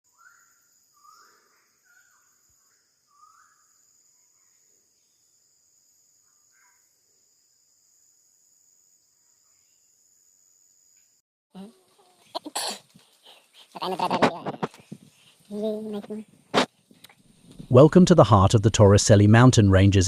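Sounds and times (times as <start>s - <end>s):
bird calls: 0.1s - 4.5s.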